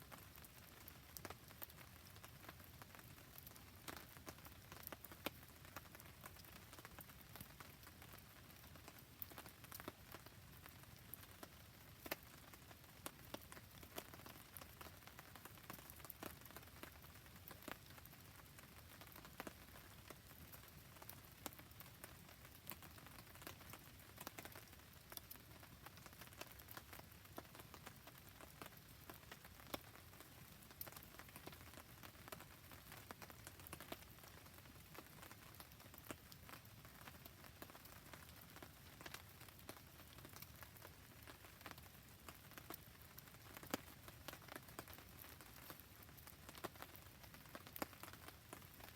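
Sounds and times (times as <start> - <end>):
faint rain hiss: 0.0 - 48.9
campfire crackling and popping: 0.1 - 48.9.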